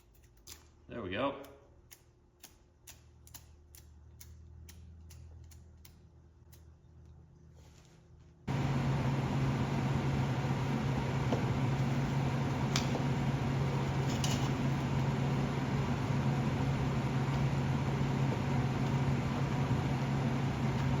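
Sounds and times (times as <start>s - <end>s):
welder arc buzzing hiss: 8.5s - 21.0s.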